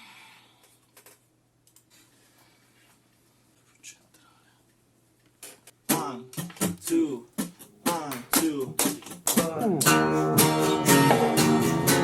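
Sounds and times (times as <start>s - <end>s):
guitar strummed chords: 9.4s - 12.0s.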